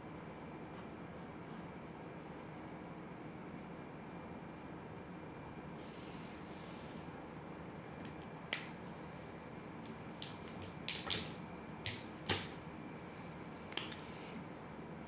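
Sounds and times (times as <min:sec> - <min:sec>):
drawing tools clicking on a desk: 0:10.2 - 0:12.6, 0:13.8 - 0:14.0.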